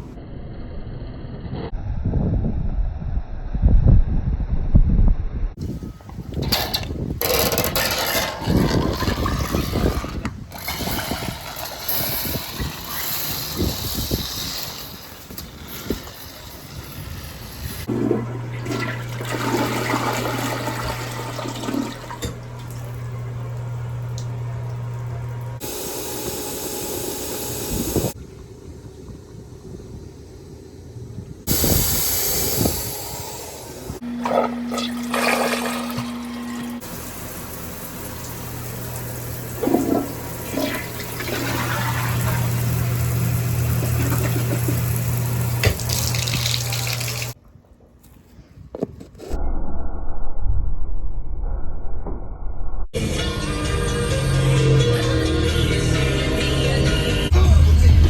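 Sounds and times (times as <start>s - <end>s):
toilet flushing: 6.4s - 30.7s, 31.4s - 47.4s
steady low hum: 17.8s - 45.9s.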